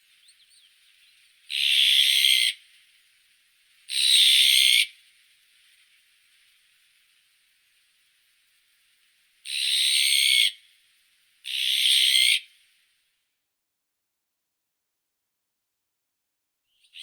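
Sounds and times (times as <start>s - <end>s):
magpie harsh calls: 1.5s - 2.6s.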